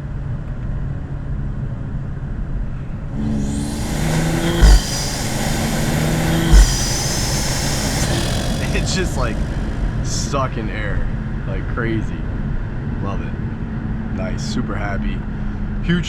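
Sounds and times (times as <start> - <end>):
car engine accelerating hard: 3.1 - 11.8
intake sucking noise: 3.2 - 10.8
high turbo whistle: 3.2 - 11.2
sharp loud thumps: 3.2 - 11.2.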